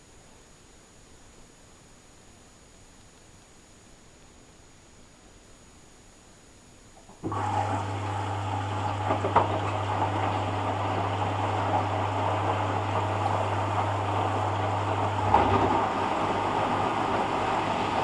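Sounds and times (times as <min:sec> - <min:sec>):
low electrical hum: 0:00.0 - 0:18.0
water rushing through washing machine: 0:07.1 - 0:18.0.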